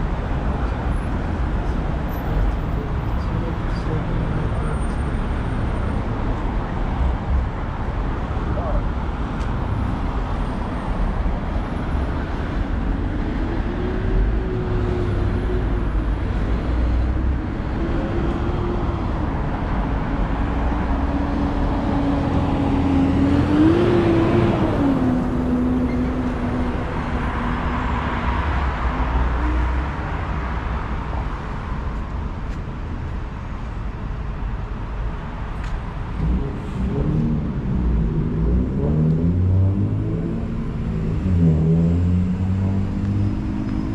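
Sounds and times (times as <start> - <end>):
traffic rumble: 0.0 - 43.9
engine hum rising and falling: 36.2 - 43.9.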